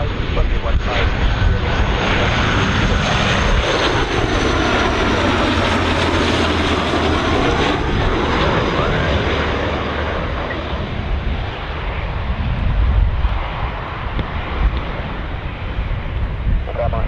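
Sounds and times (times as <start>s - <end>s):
jet airliner engines passing: 0.0s - 17.0s.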